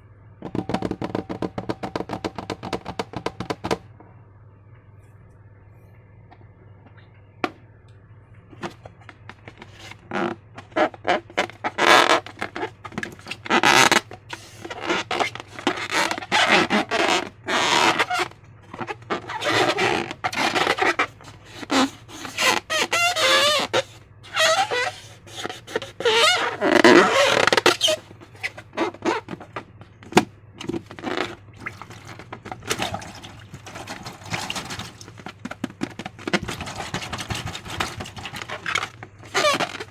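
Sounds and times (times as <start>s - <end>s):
slime squelching: 30.8s - 39.9s.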